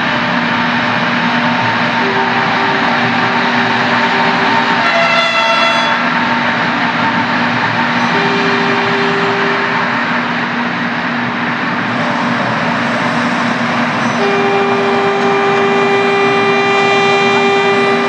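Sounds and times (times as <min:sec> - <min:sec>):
train running: 0:00.0 - 0:18.0
train horn blast: 0:02.0 - 0:06.3, 0:08.0 - 0:10.1, 0:14.2 - 0:18.0.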